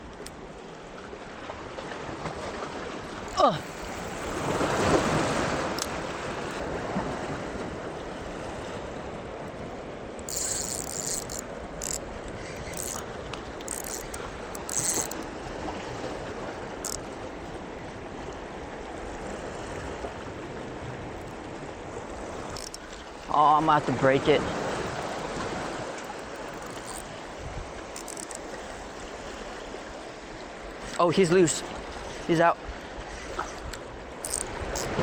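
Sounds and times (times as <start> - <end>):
moving seawater: 0.0 - 35.0
high-pitched rattling bursts: 10.3 - 12.0, 12.6 - 13.0, 13.7 - 15.2.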